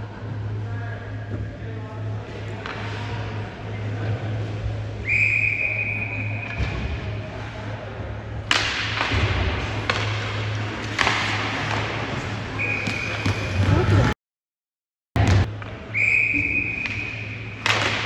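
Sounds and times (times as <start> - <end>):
constant low hum: 0.0 - 14.2
referee's whistle: 5.0 - 6.5, 12.6 - 13.6, 15.9 - 17.4.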